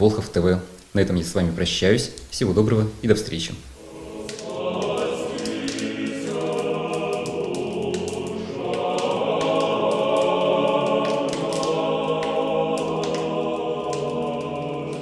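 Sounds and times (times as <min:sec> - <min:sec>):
choir singing chant-like chords: 0:03.8 - 0:15.0.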